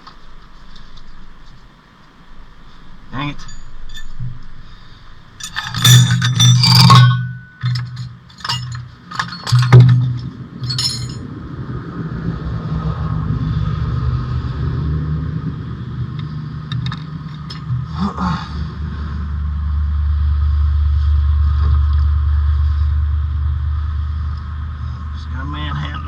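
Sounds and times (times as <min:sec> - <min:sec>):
steady low hum: 0:00.0 - 0:26.0
metal tools clinking and knocking: 0:03.2 - 0:11.2
sharp metal strikes: 0:03.2 - 0:11.2.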